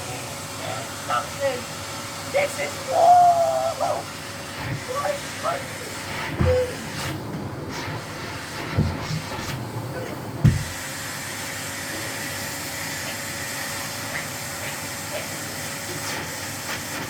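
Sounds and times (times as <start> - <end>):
vacuum cleaner hissing: 0.0 - 17.0
dull knocks: 10.4 - 10.8.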